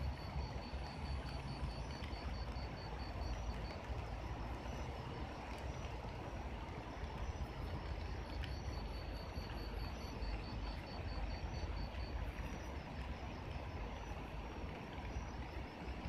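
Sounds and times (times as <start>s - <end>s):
light rain hissing: 0.0s - 16.0s.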